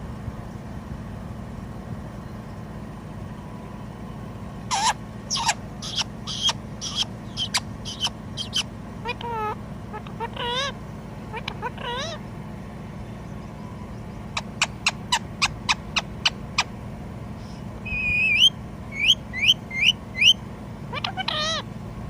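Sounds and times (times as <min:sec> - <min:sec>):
parakeet calling and chirping: 0:04.7 - 0:12.2, 0:13.3 - 0:16.8, 0:17.4 - 0:21.7.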